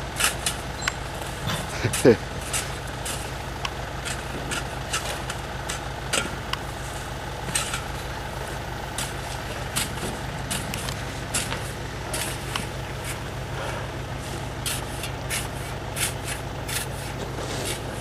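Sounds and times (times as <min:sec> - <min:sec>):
truck engine idling: 0:00.0 - 0:18.0
snow scraping and knocking: 0:14.3 - 0:18.0.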